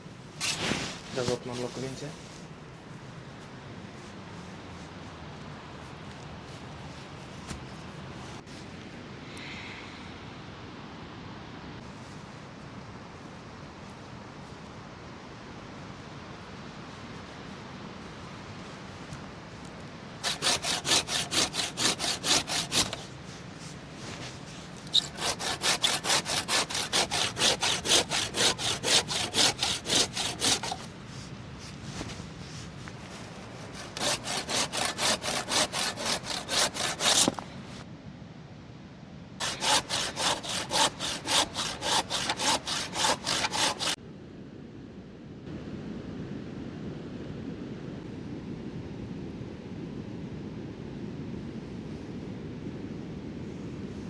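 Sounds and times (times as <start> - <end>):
hand saw cutting wood: 0.4 - 2.1, 20.2 - 37.8, 39.4 - 44.0.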